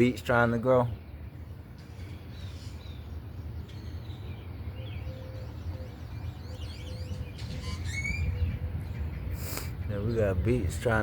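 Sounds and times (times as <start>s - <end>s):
birds chirping and singing: 0.0s - 11.0s.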